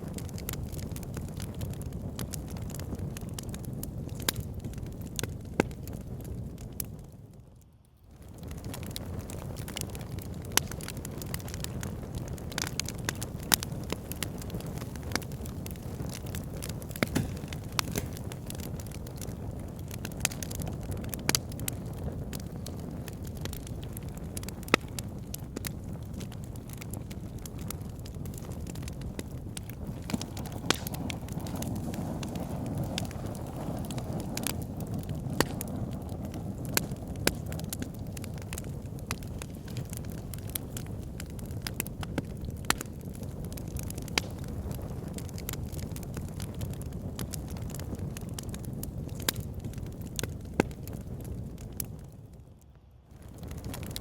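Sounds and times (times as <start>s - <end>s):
fire pit flames crackling: 0.0s - 54.0s.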